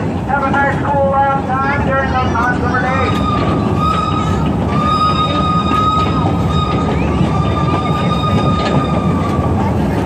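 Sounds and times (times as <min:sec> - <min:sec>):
train rumble with wheel clicks: 0:00.0 - 0:10.0
high-pitched wheel squeal: 0:03.0 - 0:09.6.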